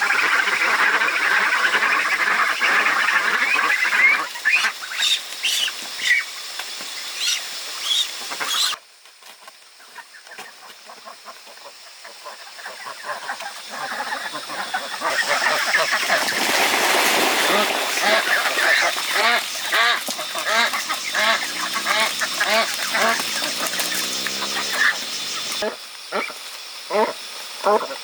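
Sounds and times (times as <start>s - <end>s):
farm fowl calling: 12.2s - 16.7s, 17.4s - 27.8s.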